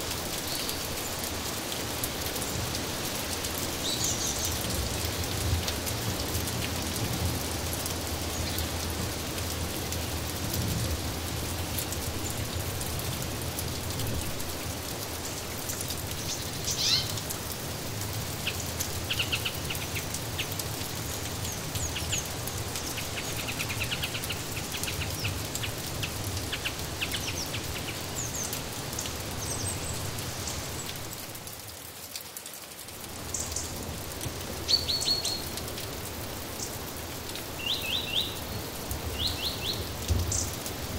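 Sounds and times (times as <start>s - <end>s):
steady rain: 0.0s - 40.9s
small birds chirping: 3.8s - 5.2s, 16.1s - 17.3s, 18.4s - 30.9s, 34.7s - 35.6s, 37.5s - 40.6s.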